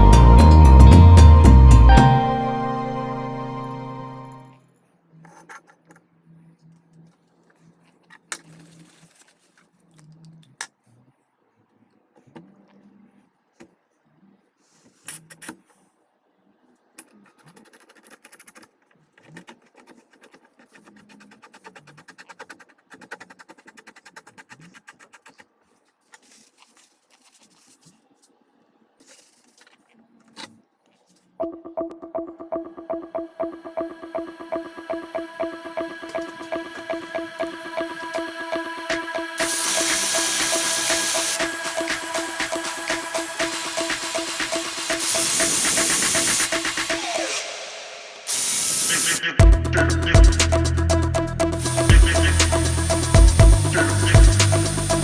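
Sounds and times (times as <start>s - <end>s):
electronic music with steady beat: 0.0s - 4.5s, 31.4s - 55.0s.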